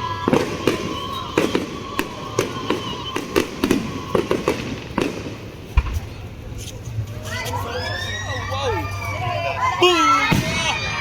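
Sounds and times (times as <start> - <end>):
fireworks bangs and crackles: 0.0 - 7.1, 10.2 - 11.0.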